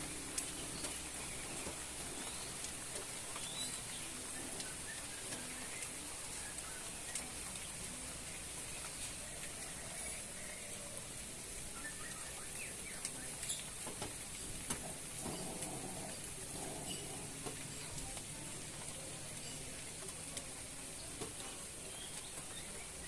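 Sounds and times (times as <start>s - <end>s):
light rain falling: 0.0s - 23.0s
faint bird chirps: 11.7s - 13.8s.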